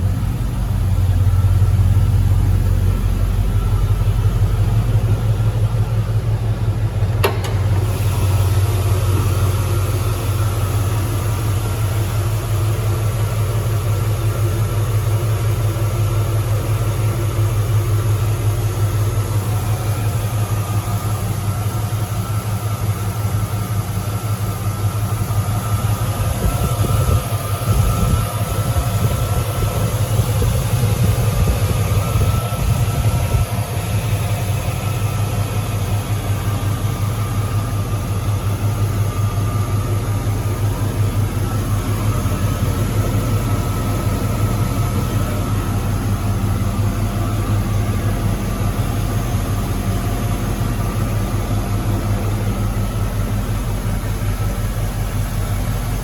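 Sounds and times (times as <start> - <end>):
truck engine idling: 0.0 - 56.0
sharp click: 7.2 - 7.8.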